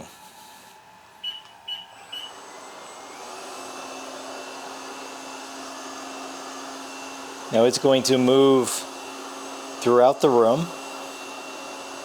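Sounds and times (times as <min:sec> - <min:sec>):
short high beeps: 0:01.2 - 0:02.3
robot vacuum motor whirring: 0:01.9 - 0:12.0.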